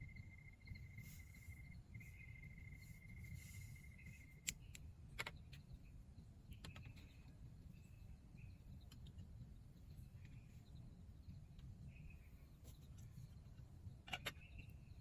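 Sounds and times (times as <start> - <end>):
insect trill: 0.0 - 4.4
faint chirps: 0.0 - 15.0.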